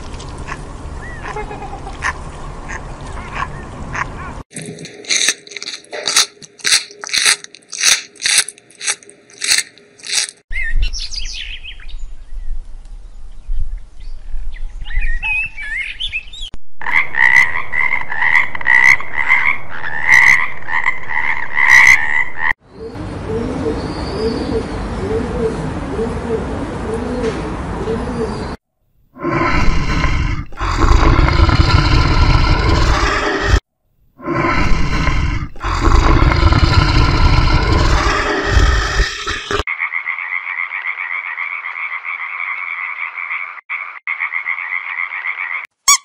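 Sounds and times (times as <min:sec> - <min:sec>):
frog croaks: 0:16.8 - 0:22.5, 0:34.2 - 0:45.7
pigeons cooing: 0:22.8 - 0:28.6
scattered animal calls: 0:34.2 - 0:45.7.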